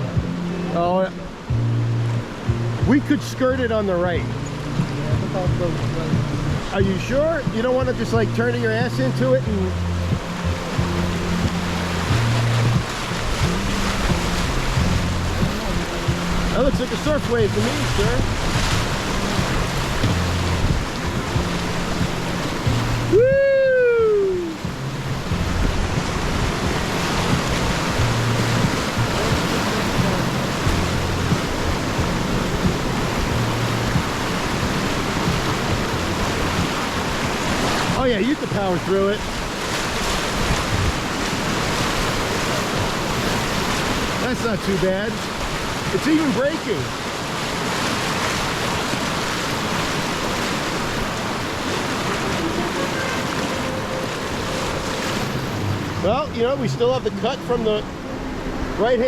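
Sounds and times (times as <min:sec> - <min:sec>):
whitewater rapids rushing: 0:00.0 - 0:59.0
low rumble: 0:03.6 - 0:38.0.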